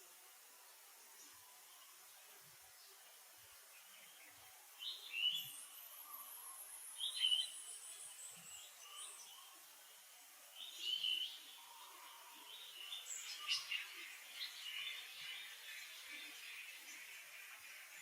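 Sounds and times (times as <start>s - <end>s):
outdoor hiss: 0.0s - 18.0s
birds chirping: 10.6s - 18.0s.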